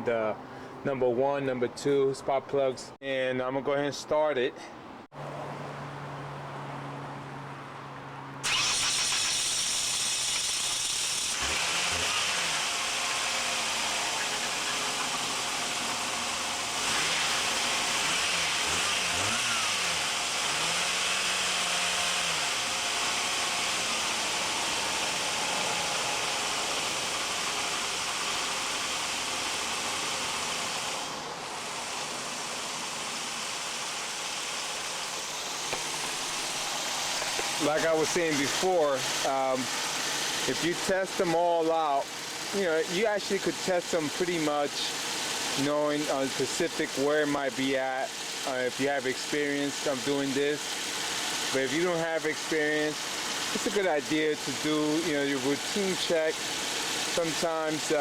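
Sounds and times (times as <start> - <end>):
car engine starting and running: 5.1 - 58.0.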